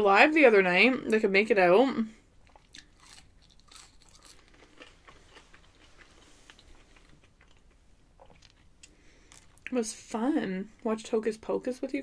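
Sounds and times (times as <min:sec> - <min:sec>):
faint chewing of fried food: 0:02.2 - 0:09.8.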